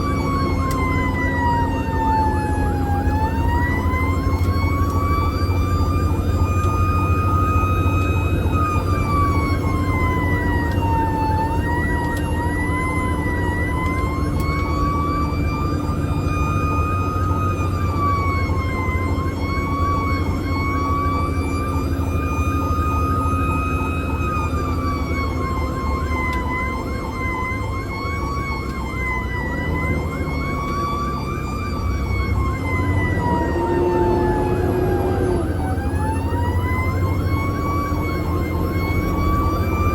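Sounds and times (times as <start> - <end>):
emergency siren wailing: 0.0 - 39.9.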